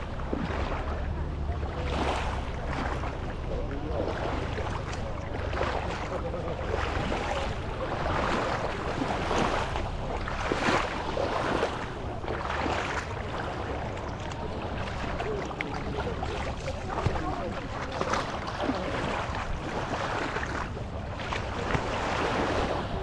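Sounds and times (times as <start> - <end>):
people's voices: 0.0 - 23.0
surf washing: 0.0 - 23.0
wind rumbling on microphone: 0.0 - 23.0.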